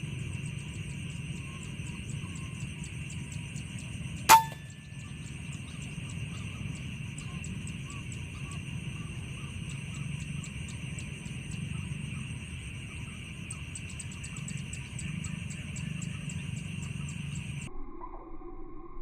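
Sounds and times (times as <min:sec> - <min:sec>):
insects chirring: 0:00.0 - 0:17.7
air rifle shot: 0:04.3 - 0:04.7.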